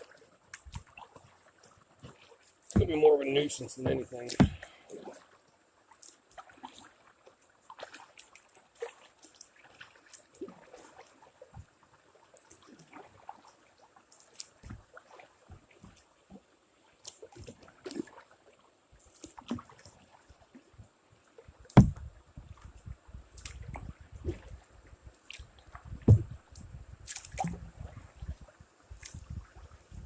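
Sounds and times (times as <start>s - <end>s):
paddle splashing water: 0.0s - 30.0s
loud thump against kayak: 2.7s - 3.0s, 3.8s - 4.7s, 21.7s - 22.1s, 26.0s - 26.4s
small knocks on kayak hull: 3.8s - 4.7s, 21.7s - 22.6s, 25.8s - 26.6s.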